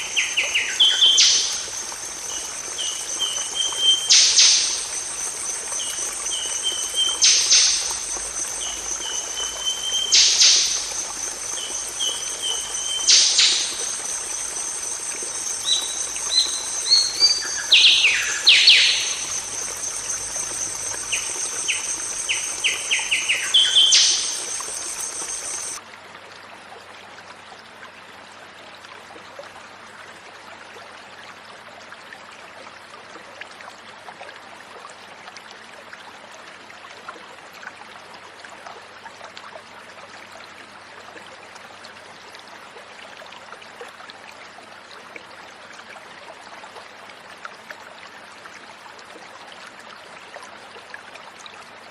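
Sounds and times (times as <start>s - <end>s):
high insect buzz: 0.2s - 25.8s
even hiss: 10.1s - 25.8s.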